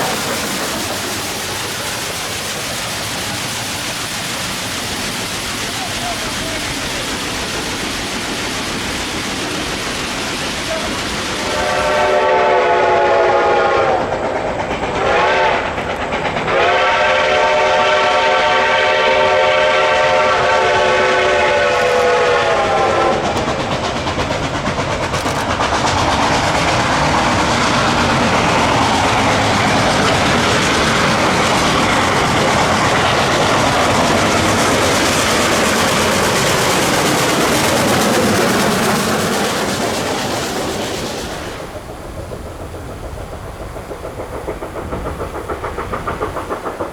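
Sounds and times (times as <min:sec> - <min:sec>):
rush of steam: 0:00.0 - 0:46.9
train wheel clatter: 0:00.0 - 0:46.9
chime steam whistle blasts: 0:11.4 - 0:14.1, 0:16.5 - 0:23.3.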